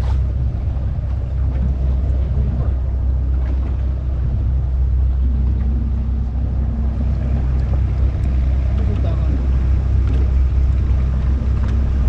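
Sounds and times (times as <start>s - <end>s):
boat engine low rumble: 0.0s - 12.0s
water around hull: 0.0s - 12.0s
wind buffeting microphone: 0.0s - 12.0s.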